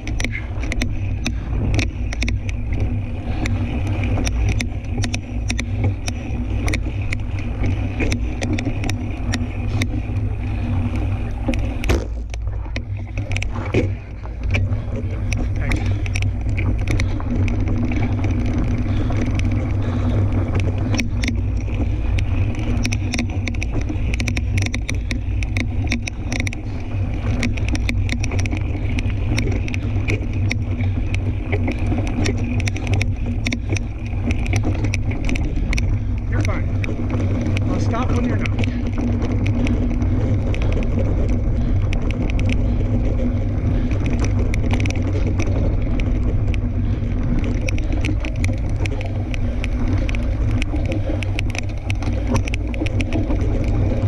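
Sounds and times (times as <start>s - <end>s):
gravel and bike rattles: 0.0s - 54.0s
wind and tyres rumbling: 0.0s - 54.0s.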